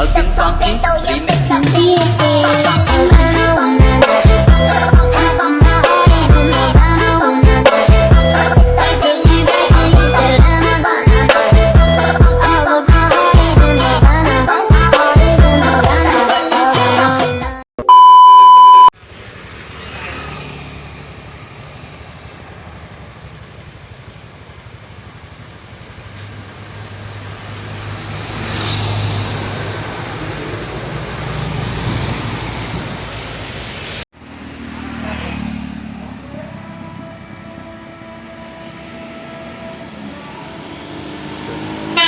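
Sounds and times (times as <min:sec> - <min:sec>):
buses passing on road: 0:00.0 - 0:17.4, 0:18.5 - 0:42.0
loud electronic beep: 0:17.8 - 0:18.9
low engine hum: 0:19.0 - 0:42.0.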